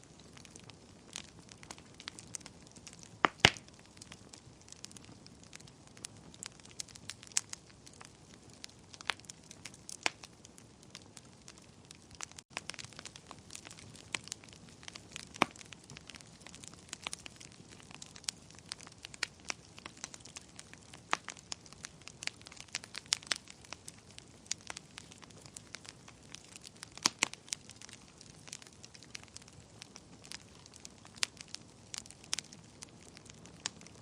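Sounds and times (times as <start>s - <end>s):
fire crackling and popping: 0.0s - 34.0s.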